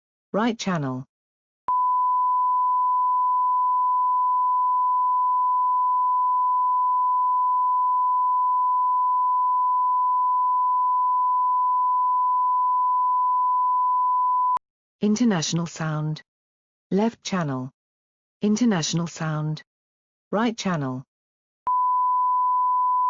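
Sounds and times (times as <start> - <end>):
steady sine-wave tone: 1.7 - 14.6, 21.7 - 23.0.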